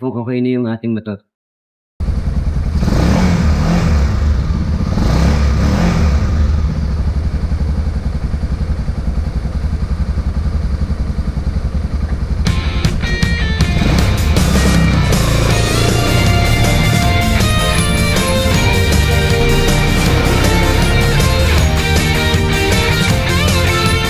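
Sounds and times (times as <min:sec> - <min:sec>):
motorcycle engine running: 0:02.0 - 0:24.0
music: 0:12.4 - 0:24.0.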